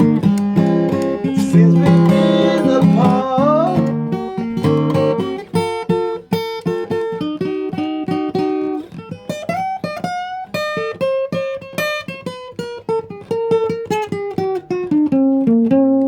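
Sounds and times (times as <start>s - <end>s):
acoustic guitar playing: 0.0s - 16.0s
person singing: 0.9s - 4.4s.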